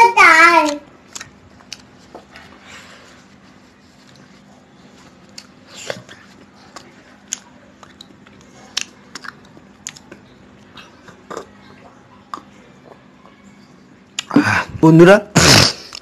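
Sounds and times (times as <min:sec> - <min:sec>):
lip-smacks: 0:00.6 - 0:01.9, 0:05.2 - 0:11.3, 0:14.1 - 0:14.4
person chewing: 0:00.6 - 0:02.6, 0:04.0 - 0:13.4, 0:14.1 - 0:14.4.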